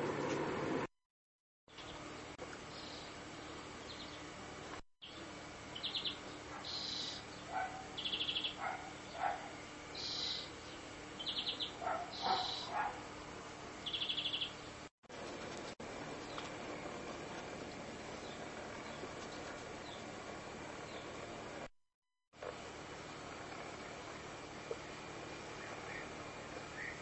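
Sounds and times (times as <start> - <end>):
small bird chirping and trilling: 5.0 - 7.2, 8.0 - 8.6, 10.0 - 10.5, 11.2 - 12.7, 13.8 - 14.6.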